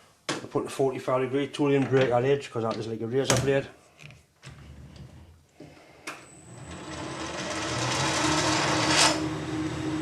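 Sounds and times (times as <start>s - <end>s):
lathe motor whine and hum: 6.3s - 10.0s
tool scraping steel bar: 6.9s - 9.3s.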